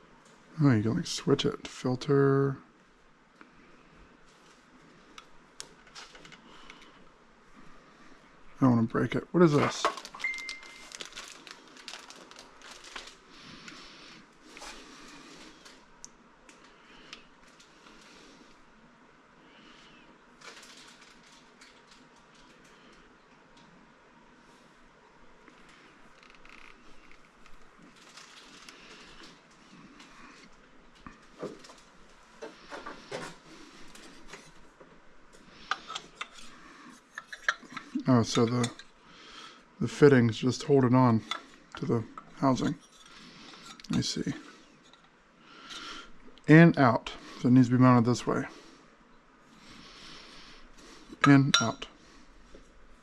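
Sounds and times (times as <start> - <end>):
packaging crinkling: 9.6 - 13.8, 20.4 - 22.7, 27.1 - 29.2.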